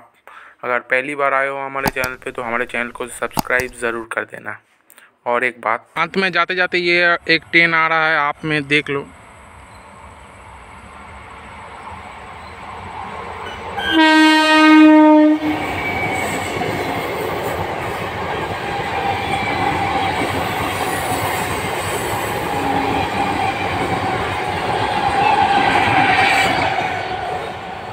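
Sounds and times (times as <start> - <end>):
train horn: 13.8 - 16.2.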